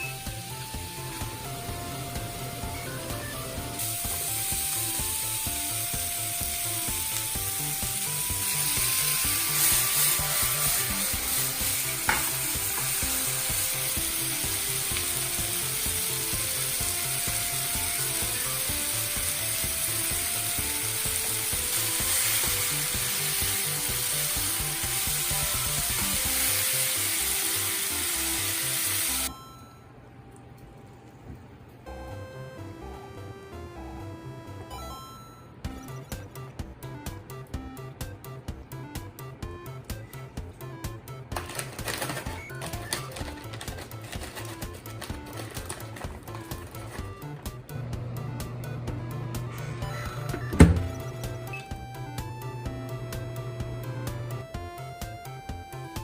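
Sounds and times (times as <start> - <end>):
light background music: 0.0 - 56.0
food sizzling in hot oil: 3.8 - 29.3.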